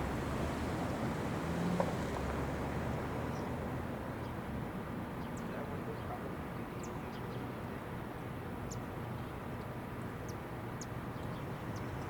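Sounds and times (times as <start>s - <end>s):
outdoor background rumble: 0.0s - 6.6s.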